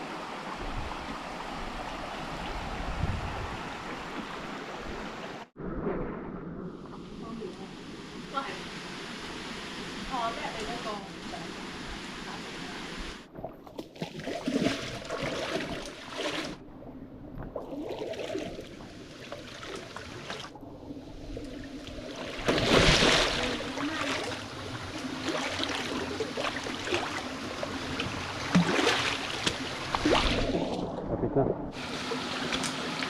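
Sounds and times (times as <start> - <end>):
people wading through stream: 22.0 - 30.8
loud water splash: 22.2 - 24.5, 28.4 - 30.9.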